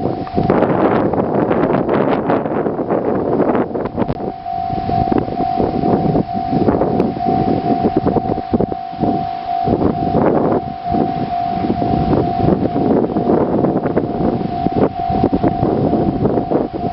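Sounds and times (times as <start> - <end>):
gusty wind on microphone: 0.0 - 16.9
level crossing alarm pulsing tone: 3.8 - 16.9.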